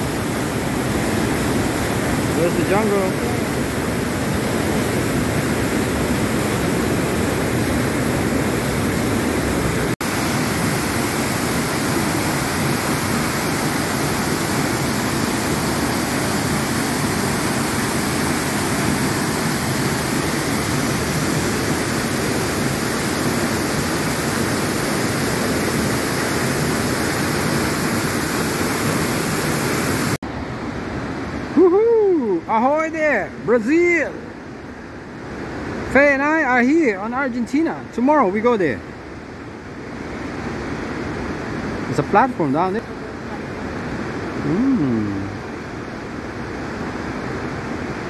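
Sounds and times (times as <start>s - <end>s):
waterfall roaring: 0.0s - 48.0s.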